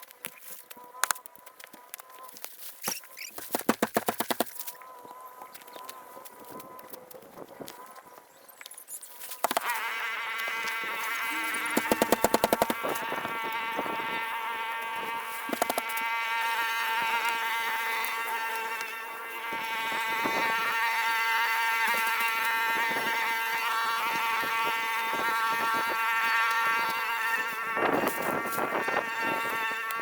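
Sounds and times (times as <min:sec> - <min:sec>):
small motor buzzing: 0:00.0 - 0:30.0
rapid clicking: 0:03.4 - 0:04.6, 0:11.7 - 0:12.9, 0:15.5 - 0:16.0.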